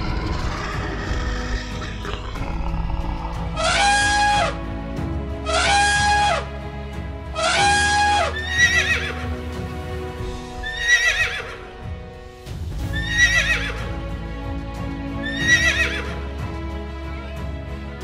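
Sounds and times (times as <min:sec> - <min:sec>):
background music: 0:00.0 - 0:18.0
horse whinnying: 0:07.4 - 0:09.3, 0:10.6 - 0:11.6, 0:12.9 - 0:13.8, 0:15.2 - 0:16.2.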